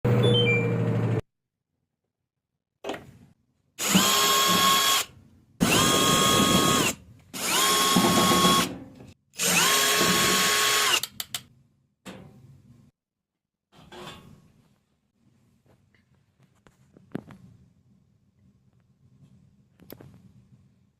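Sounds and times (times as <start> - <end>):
power drill whining: 3.8 - 8.7, 9.4 - 11.1.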